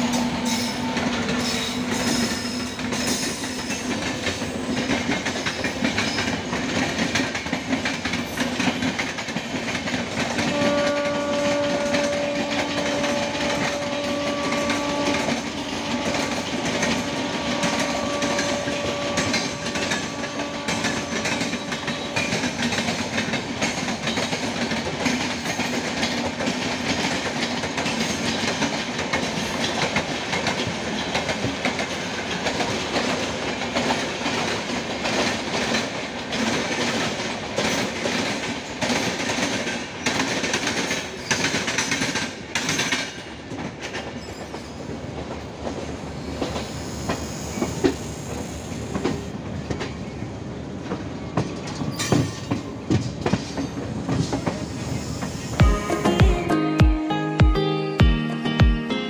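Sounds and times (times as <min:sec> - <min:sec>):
train rumble: 0:00.0 - 0:56.5
passing train coaches: 0:00.0 - 0:59.0
wheels clattering over rail joints: 0:50.8 - 0:55.3.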